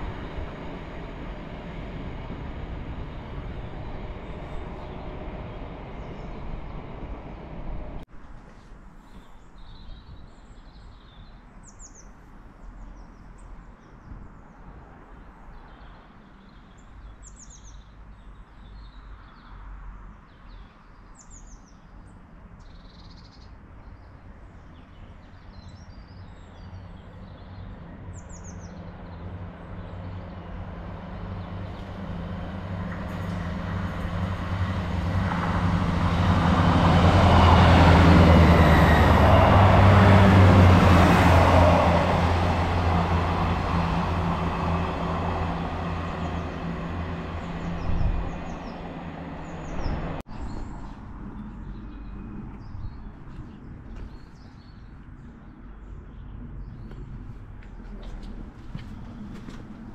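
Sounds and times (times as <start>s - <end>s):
diesel train engine hum: 0.0s - 8.1s, 26.4s - 52.8s
train rail noise: 0.0s - 9.3s, 27.6s - 50.2s.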